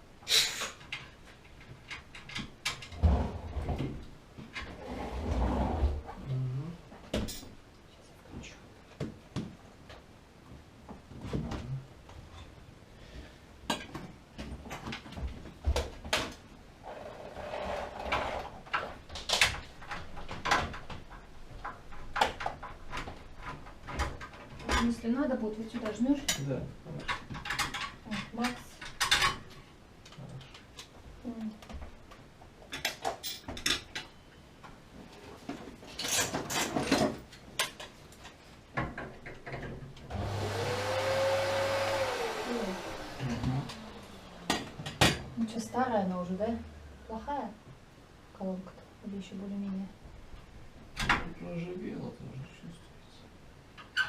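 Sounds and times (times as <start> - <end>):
clicks and knocks of parts: 0.7 - 3.0, 18.0 - 25.0, 25.7 - 31.0, 31.6 - 34.8, 35.5 - 40.1.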